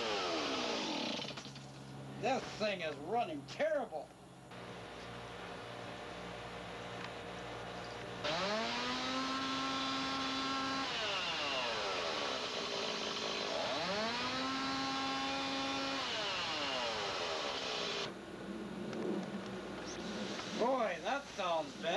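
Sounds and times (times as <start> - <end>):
chainsaw engine revving: 0.0 - 1.6, 8.2 - 18.1.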